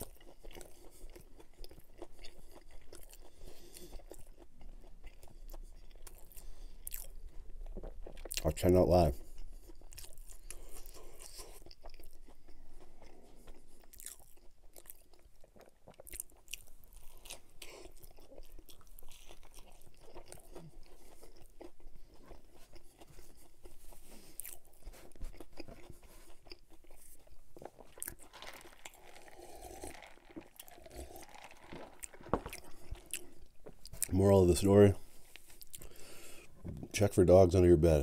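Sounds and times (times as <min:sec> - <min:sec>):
chewing and crunching: 0:00.0 - 0:38.0
wet mouth sounds: 0:22.7 - 0:34.2, 0:35.4 - 0:36.4.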